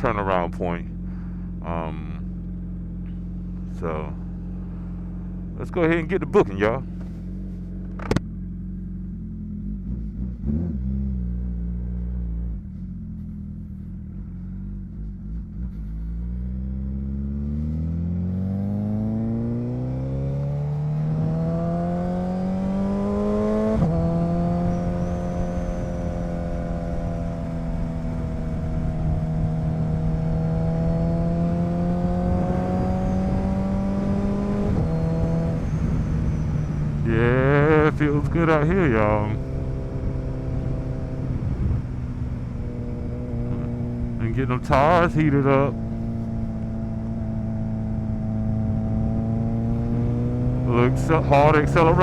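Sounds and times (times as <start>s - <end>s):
motorcycle engine pulling away: 13.0s - 37.7s, 39.2s - 44.3s, 45.2s - 52.0s.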